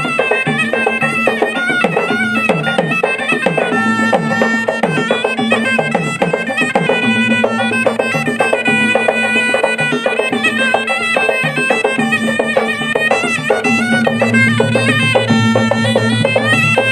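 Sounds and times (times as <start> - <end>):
drums beating fast rhythm: 0.0 - 16.9
shrill double-reed melody: 0.0 - 16.9
low drone: 3.6 - 9.7, 13.3 - 16.9.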